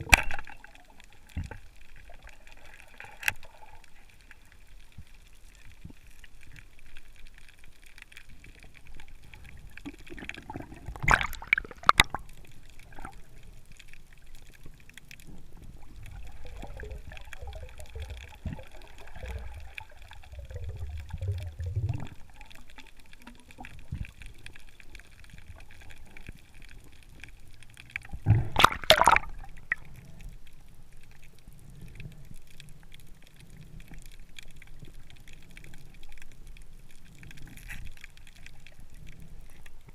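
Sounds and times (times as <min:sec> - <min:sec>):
water sloshing and gurgling: 0:00.0 - 0:05.2, 0:08.2 - 0:39.9
water splashing: 0:08.9 - 0:13.3, 0:27.8 - 0:30.0.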